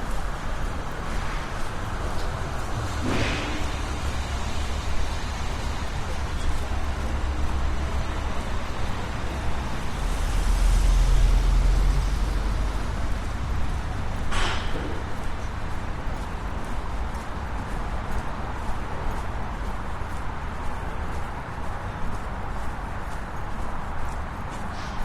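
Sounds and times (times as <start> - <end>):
street traffic road noise: 0.0 - 25.0
vehicle engine drone passing: 2.4 - 14.2.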